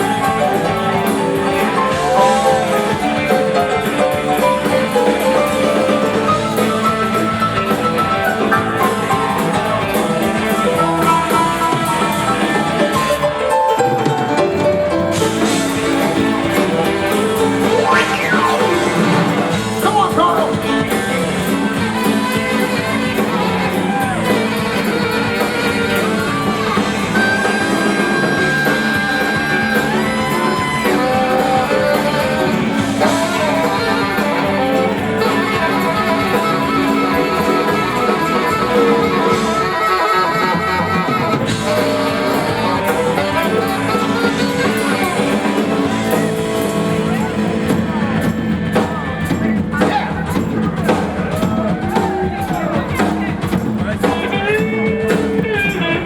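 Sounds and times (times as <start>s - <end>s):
electric guitar solo: 0.0s - 50.4s
bass and drums: 0.0s - 56.0s.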